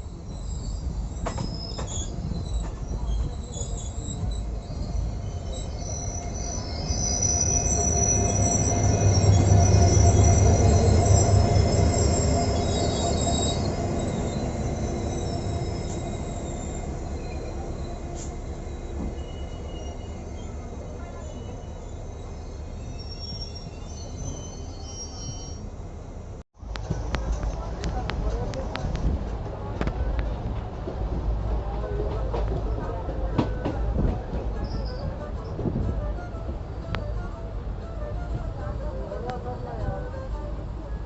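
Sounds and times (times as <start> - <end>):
high-pitched wheel squeal: 0.0 - 25.7
train wheels rumbling on rails: 0.0 - 41.0.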